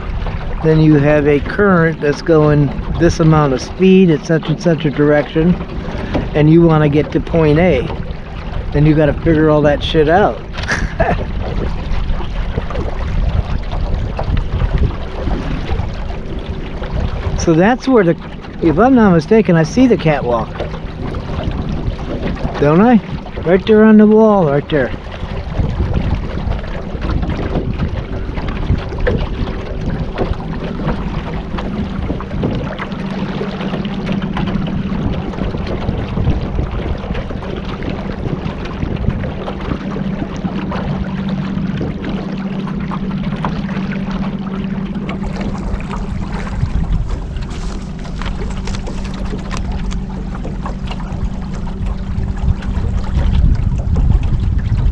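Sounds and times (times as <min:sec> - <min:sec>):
motorboat engine humming: 0:00.0 - 0:54.9
water rushing past: 0:00.0 - 0:54.9
wind rushing: 0:44.5 - 0:50.4, 0:51.0 - 0:54.9.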